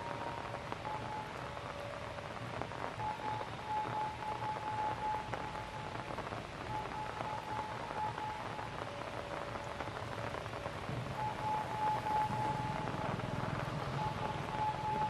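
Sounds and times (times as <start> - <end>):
light rain pattering: 0.0 - 15.0
thin steady tone: 11.2 - 15.0.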